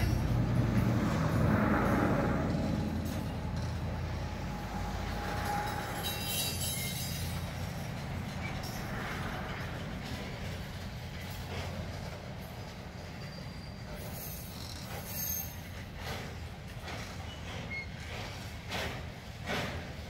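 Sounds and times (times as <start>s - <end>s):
train wheels rumbling on rail: 0.0s - 20.0s
wheels clacking over rail joints: 0.0s - 20.0s
high-pitched wheel squeals: 1.3s - 9.1s, 12.9s - 15.8s, 17.2s - 18.2s.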